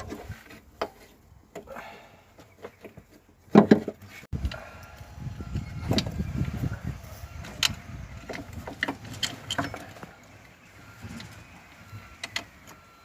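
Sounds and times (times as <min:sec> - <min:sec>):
metal tools clinking: 0:08.4 - 0:10.1.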